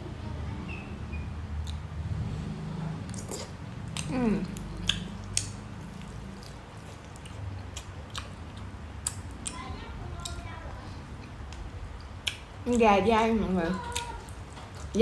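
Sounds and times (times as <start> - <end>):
chewing with wet mouth noises: 3.1 - 12.9, 13.6 - 15.0.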